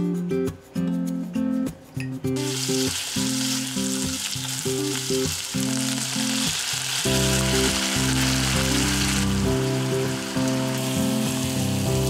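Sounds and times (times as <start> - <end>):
background music: 0.0 - 12.0
food sizzling in frying pan: 2.4 - 12.0.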